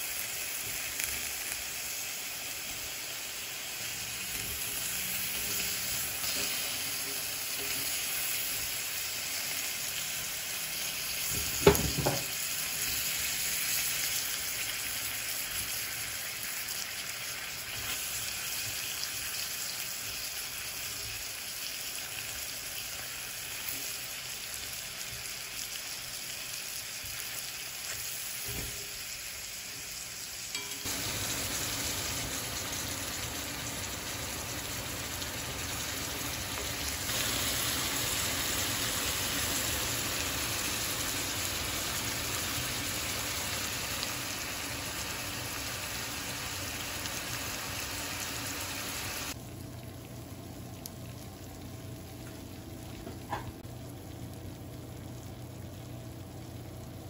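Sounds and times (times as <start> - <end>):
food sizzling in a skillet: 0.0 - 50.1.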